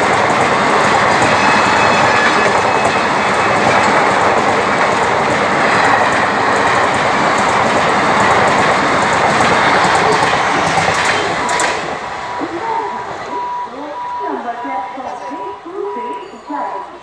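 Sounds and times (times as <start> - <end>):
train wheels running on rails: 0.0 - 17.0.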